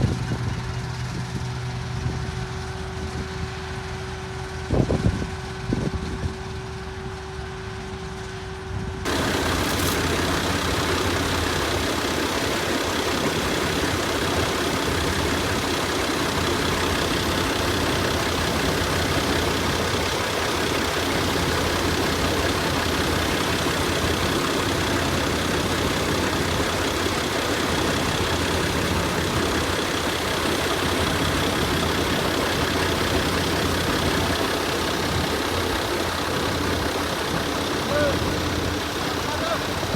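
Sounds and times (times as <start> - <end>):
dense mechanical noise: 9.0 - 39.9
harvesting machine engine running: 9.1 - 39.9.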